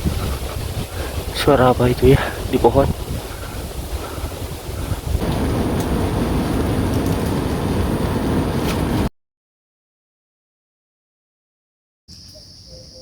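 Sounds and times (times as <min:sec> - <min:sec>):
loud steady rushing noise: 0:00.0 - 0:09.1.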